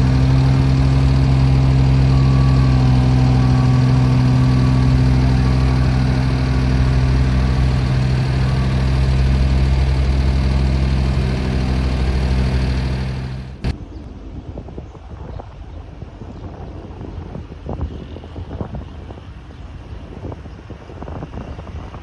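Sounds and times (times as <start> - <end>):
large engine running: 0.0 - 13.8
wind noise on microphone: 13.6 - 22.0.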